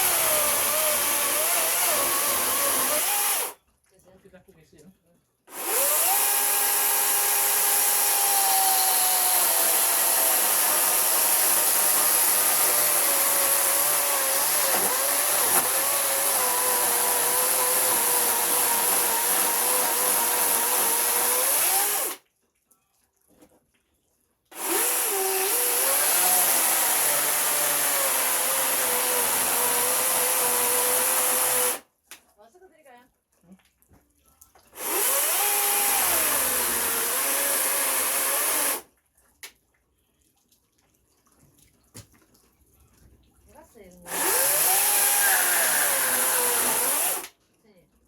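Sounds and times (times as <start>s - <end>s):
power tool motor whining: 0.0s - 3.6s, 5.5s - 22.2s, 24.5s - 31.8s, 34.8s - 38.8s, 44.1s - 47.3s.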